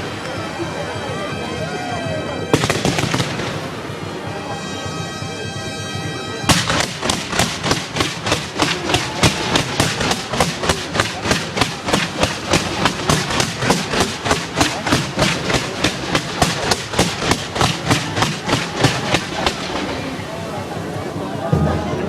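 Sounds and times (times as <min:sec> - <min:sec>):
fireworks cracking: 0:01.3 - 0:04.9, 0:06.4 - 0:22.0
shrill tone with overtones: 0:04.1 - 0:06.5.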